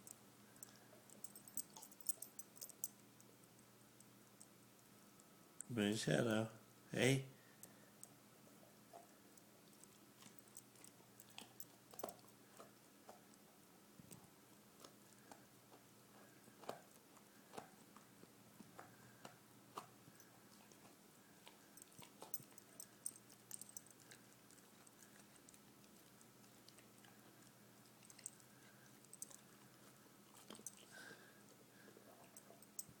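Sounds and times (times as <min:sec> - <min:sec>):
dog chewing: 0:08.9 - 0:13.5, 0:14.1 - 0:33.0
teeth crunching: 0:09.6 - 0:13.4, 0:14.8 - 0:31.3.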